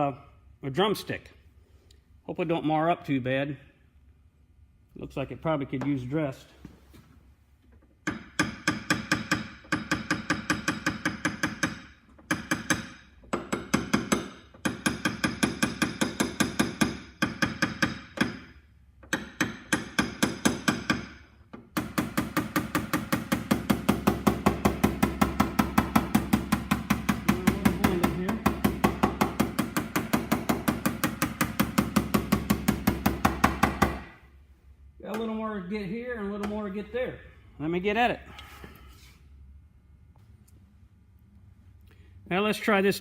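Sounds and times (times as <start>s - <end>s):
hammer tapping on sheet metal: 8.0s - 18.5s, 19.1s - 34.1s.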